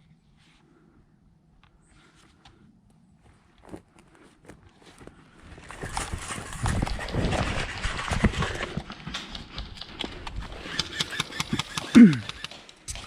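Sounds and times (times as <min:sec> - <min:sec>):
clothing and gear rustling: 0:03.1 - 0:08.3
footsteps on rough ground: 0:03.1 - 0:13.0.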